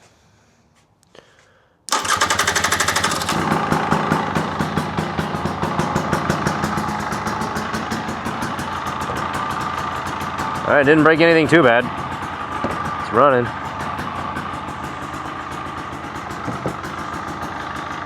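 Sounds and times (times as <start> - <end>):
motorcycle engine starting and idling: 1.9 - 18.0.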